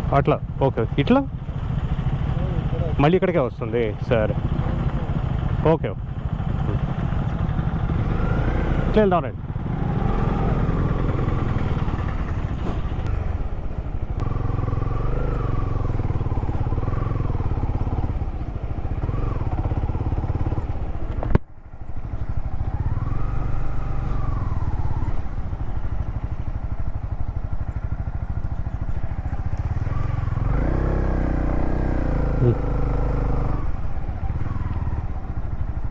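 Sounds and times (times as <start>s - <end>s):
motorcycle engine running: 0.0s - 35.9s.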